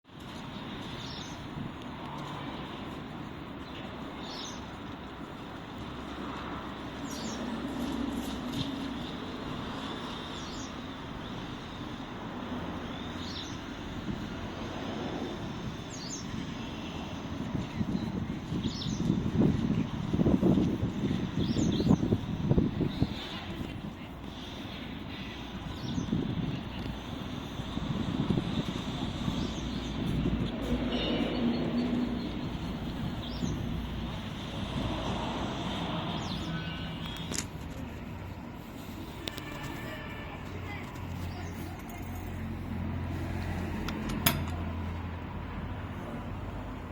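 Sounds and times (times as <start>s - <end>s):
tractor diesel engine rumbling: 22.2s - 46.9s.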